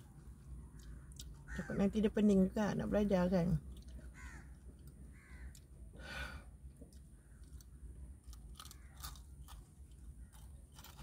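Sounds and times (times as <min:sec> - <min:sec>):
person chewing crispy food: 0:00.2 - 0:01.6, 0:06.6 - 0:11.0.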